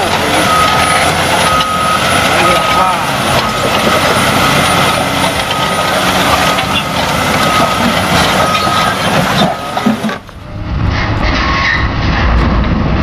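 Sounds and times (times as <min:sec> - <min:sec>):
heavy machinery engine running: 0:00.0 - 0:13.0
high whine: 0:10.1 - 0:13.0.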